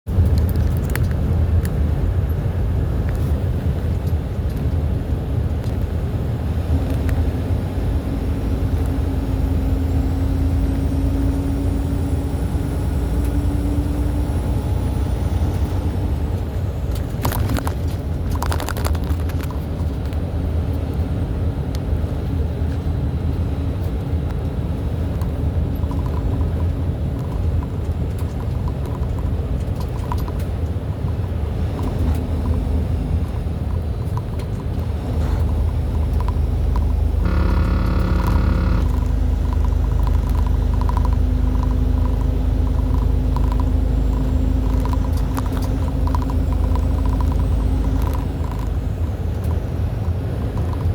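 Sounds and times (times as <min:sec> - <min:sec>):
vehicle engine rumble: 0:00.0 - 0:50.9
rattle of clicks: 0:00.2 - 0:01.7, 0:35.4 - 0:49.6
faint steady hum: 0:35.5 - 0:49.4.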